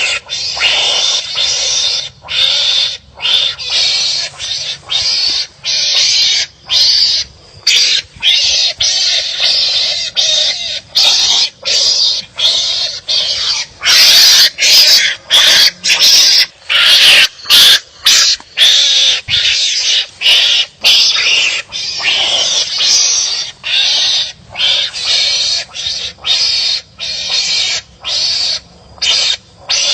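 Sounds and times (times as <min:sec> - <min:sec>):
animals barking harshly: 0:00.0 - 0:29.9.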